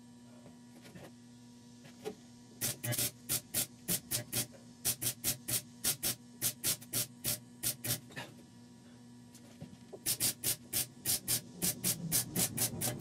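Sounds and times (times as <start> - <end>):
electrical hum: 0.0 - 13.0
welding arc pulses: 2.6 - 8.1, 10.0 - 13.0.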